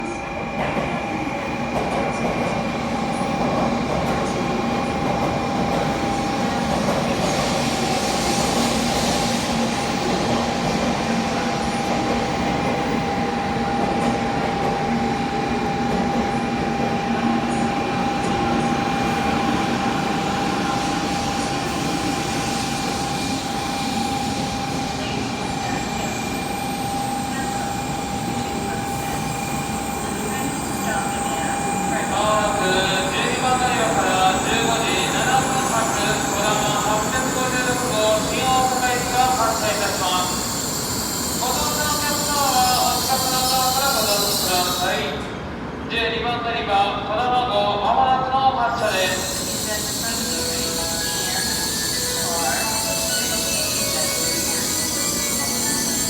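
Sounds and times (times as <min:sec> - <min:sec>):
train humming: 0:00.0 - 0:45.8, 0:48.8 - 0:56.0
station noise: 0:48.8 - 0:56.0.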